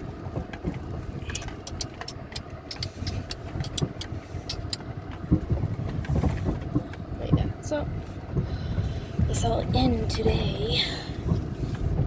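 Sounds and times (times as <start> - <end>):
car engine and road rumble: 0.0 - 12.0
sharp irregular clicks: 1.2 - 4.8.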